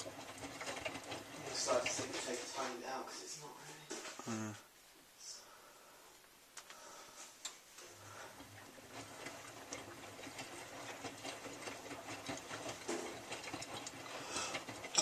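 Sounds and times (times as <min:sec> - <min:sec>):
washing machine motor hum: 0:00.0 - 0:03.1, 0:07.0 - 0:15.0.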